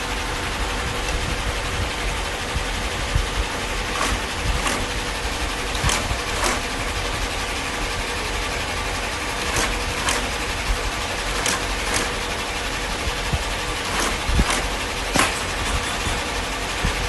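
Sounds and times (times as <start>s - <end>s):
machinery humming: 0.0s - 17.0s
sharp machine clicks: 0.0s - 17.0s.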